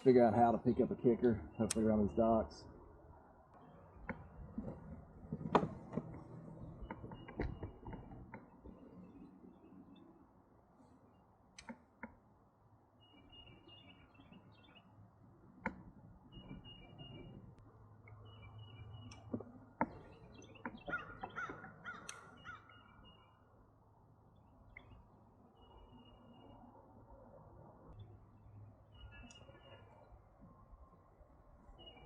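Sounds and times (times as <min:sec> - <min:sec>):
sharp clicks and knocks: 0:04.0 - 0:08.8
faint birds calling: 0:12.9 - 0:15.0, 0:15.6 - 0:23.6, 0:27.9 - 0:30.7, 0:31.7 - 0:32.0.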